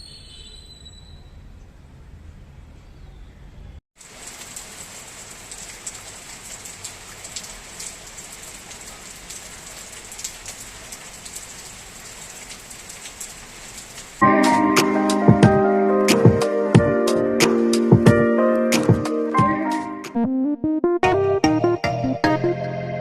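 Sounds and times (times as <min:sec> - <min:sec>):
rain pattering: 0:04.0 - 0:19.9.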